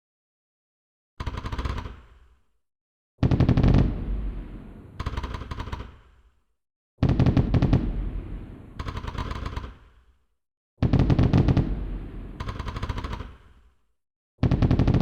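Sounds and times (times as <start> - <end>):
fireworks banging: 3.2 - 5.0, 7.0 - 8.8, 10.8 - 12.6.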